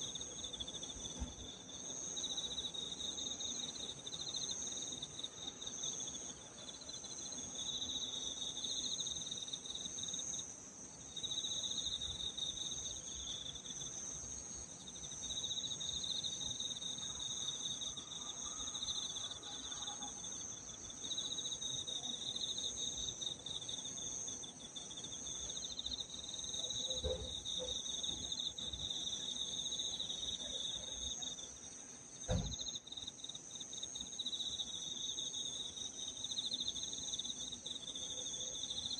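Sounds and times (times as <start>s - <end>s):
crickets chirping: 0.0s - 38.9s
short knock: 32.3s - 32.7s.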